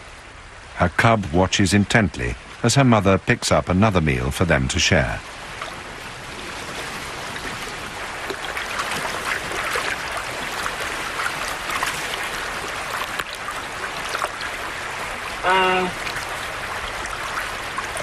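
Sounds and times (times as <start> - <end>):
river water flowing: 0.0 - 18.0
faint splashes: 5.2 - 18.0.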